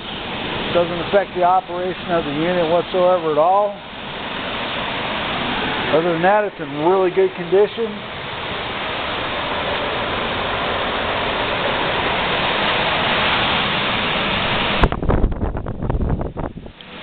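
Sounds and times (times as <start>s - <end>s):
air conditioner fan blowing: 0.0s - 17.0s
low thumps and rumbles: 14.0s - 16.8s.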